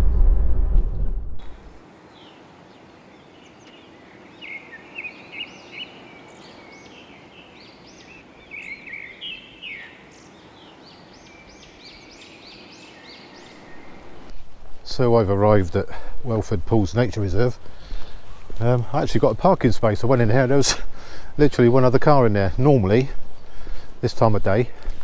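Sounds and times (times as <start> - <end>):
songbird chirping: 1.4 - 15.4
steady hiss: 1.4 - 25.0.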